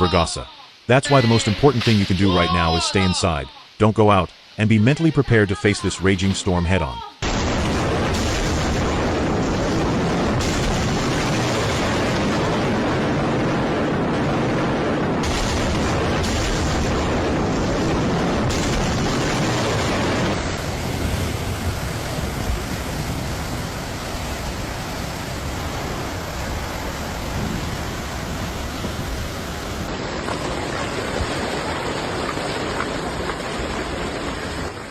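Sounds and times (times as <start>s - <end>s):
roar of wind and rain: 7.2s - 34.9s.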